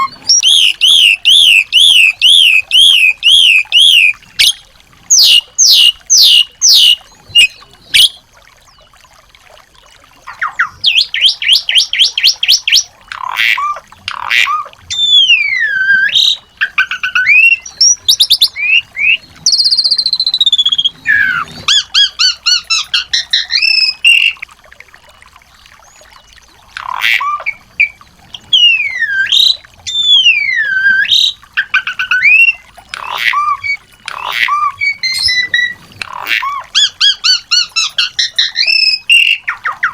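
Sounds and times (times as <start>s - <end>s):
small songbirds singing: 0.0s - 9.2s, 14.9s - 24.4s.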